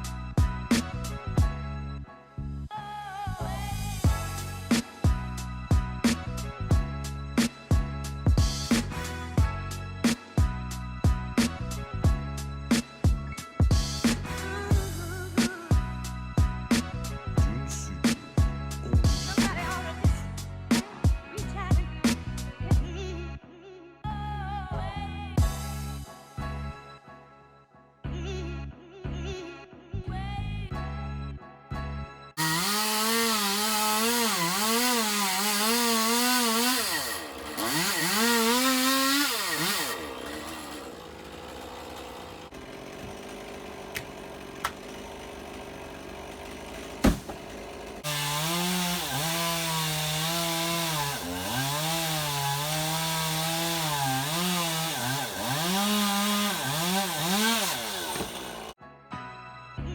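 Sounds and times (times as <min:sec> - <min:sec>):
chainsaw cutting wood: 0:00.0 - 0:01.4, 0:03.7 - 0:10.5, 0:11.3 - 0:21.2, 0:32.4 - 0:58.8
sharp knock: 0:47.0 - 0:47.5.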